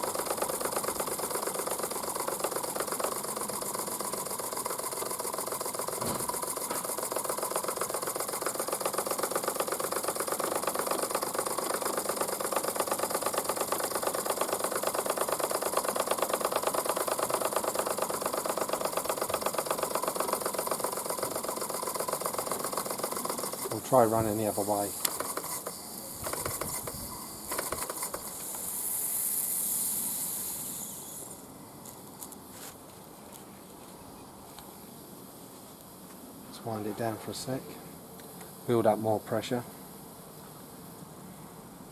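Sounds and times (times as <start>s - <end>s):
model steam engine clattering: 0.0s - 29.0s
steam hissing: 0.0s - 31.5s.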